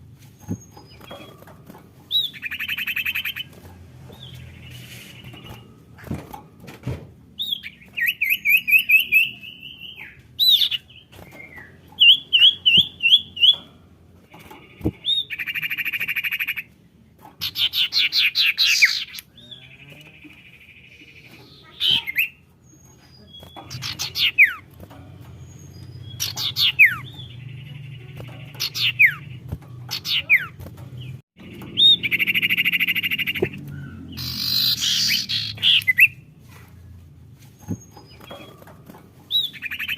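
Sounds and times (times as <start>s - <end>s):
bird calls with chirps and whistles: 7.4s - 13.7s, 17.4s - 24.7s, 25.4s - 38.7s, 39.3s - 39.9s.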